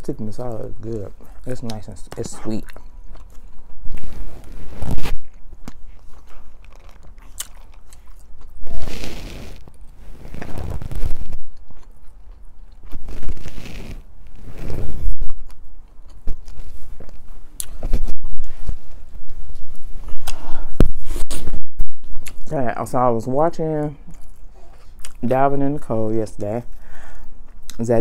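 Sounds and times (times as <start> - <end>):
person chewing food: 2.4 - 4.6, 5.2 - 10.0, 11.0 - 14.3, 15.3 - 17.8, 24.1 - 25.2, 26.7 - 27.8.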